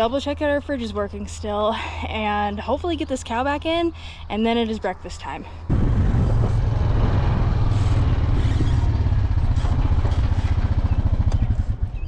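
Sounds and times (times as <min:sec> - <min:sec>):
vehicle engine rumbling: 0:05.4 - 0:12.0.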